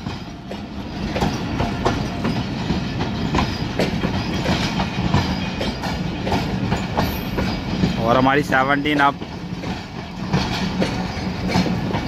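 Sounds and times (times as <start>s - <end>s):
train low rumble: 0.0s - 12.0s
train wheels clacking over rail joints: 0.0s - 12.0s.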